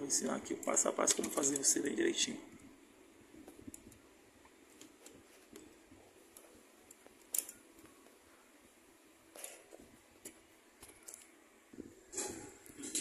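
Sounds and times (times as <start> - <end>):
small parts clicking: 6.8 - 7.9, 10.2 - 11.4.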